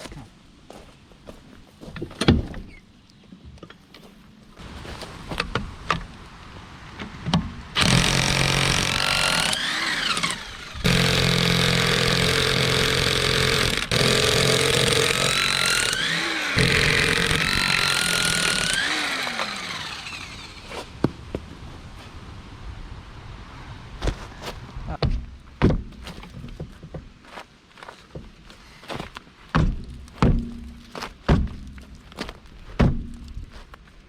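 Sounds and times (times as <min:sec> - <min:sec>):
motor running: 0:07.8 - 0:20.7.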